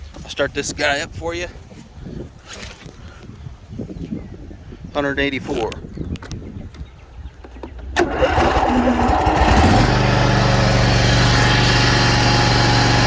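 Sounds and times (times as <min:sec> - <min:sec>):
electric starter cranking: 0:08.0 - 0:13.0
mower engine idling: 0:08.0 - 0:13.0.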